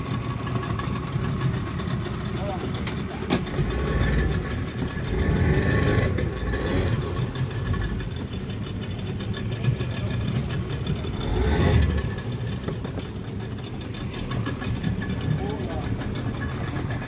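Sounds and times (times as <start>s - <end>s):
outboard motors running: 0.0s - 17.0s.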